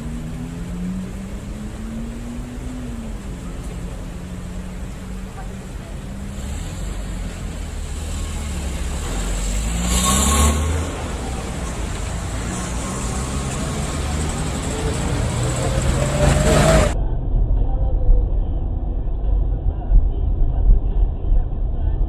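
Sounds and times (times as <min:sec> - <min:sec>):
car engine running: 0:00.0 - 0:17.0
road noise: 0:00.0 - 0:20.6
muffled car noise: 0:00.0 - 0:22.0.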